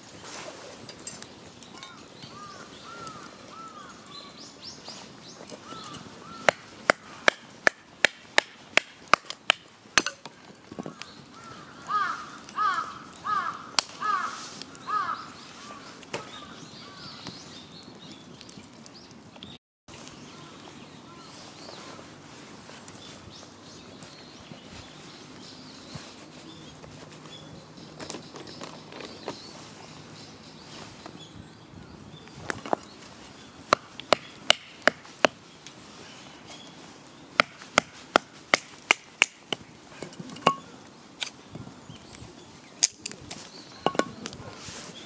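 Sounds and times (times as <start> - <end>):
crow cawing: 1.8 - 4.1, 5.6 - 7.1, 10.9 - 17.2
firewood being chopped: 5.4 - 14.8, 32.4 - 35.8, 36.6 - 41.4, 42.7 - 44.6.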